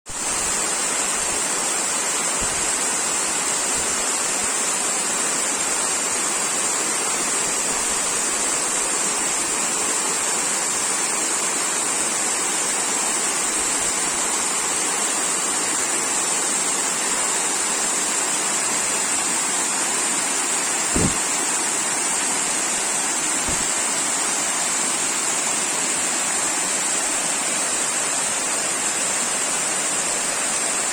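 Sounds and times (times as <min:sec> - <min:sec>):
waterfall rushing: 0:15.7 - 0:30.9
brief low bump: 0:20.9 - 0:21.2, 0:23.5 - 0:23.7.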